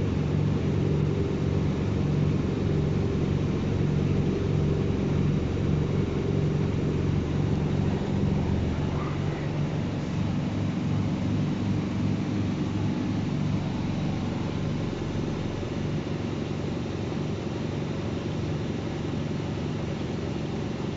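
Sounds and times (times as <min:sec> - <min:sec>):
washing machine motor drone: 0:00.0 - 0:20.9.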